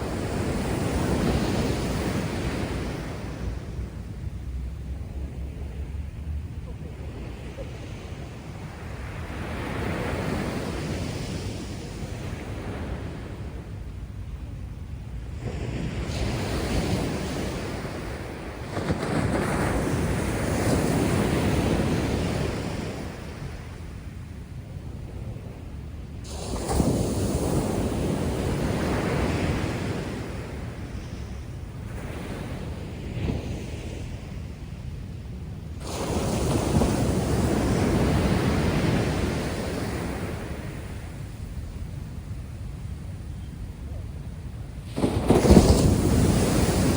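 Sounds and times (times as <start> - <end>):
surf waves crashing on beach: 0.0 - 46.9
wind rumble on microphone: 0.0 - 46.9
wave breaking: 44.8 - 46.9.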